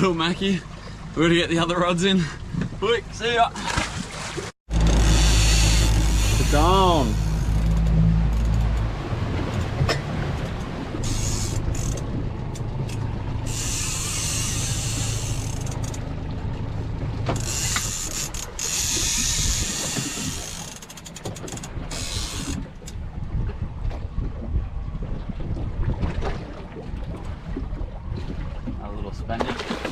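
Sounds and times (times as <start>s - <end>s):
boat motor humming: 0.0s - 25.8s
fishing reel gears whirring: 4.7s - 8.7s, 11.0s - 12.1s, 12.8s - 16.1s, 17.4s - 22.6s.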